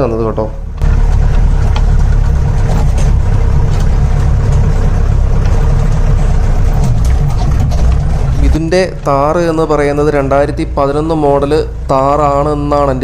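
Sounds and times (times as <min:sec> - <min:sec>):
jeep engine running: 0:00.0 - 0:13.0
knocks and rattles: 0:00.8 - 0:09.4.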